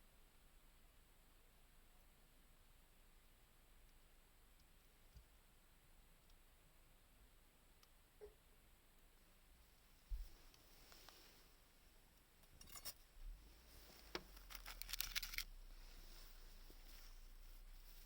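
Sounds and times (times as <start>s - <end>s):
small wood fire crackling: 9.0s - 18.0s.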